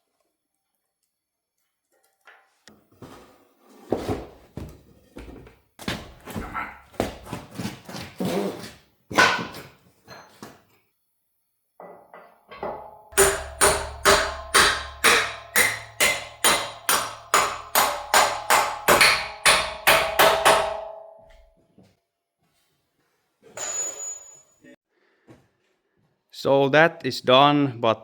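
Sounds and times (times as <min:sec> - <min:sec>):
hammer blows on metal: 0:12.6 - 0:21.4.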